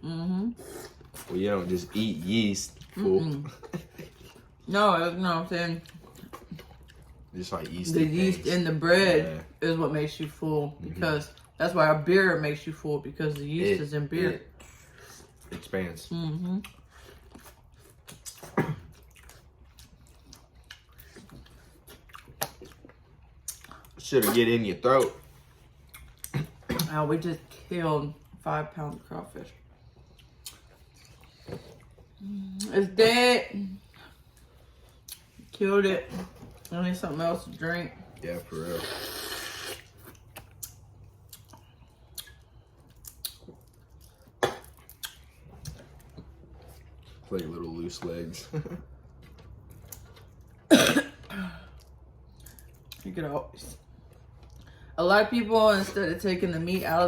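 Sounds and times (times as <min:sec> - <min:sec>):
chewing and lip smacking: 0:05.7 - 0:08.0, 0:16.4 - 0:26.9, 0:29.6 - 0:32.8, 0:33.9 - 0:35.5, 0:38.9 - 0:47.8, 0:48.8 - 0:50.7, 0:51.8 - 0:53.2, 0:53.8 - 0:55.0.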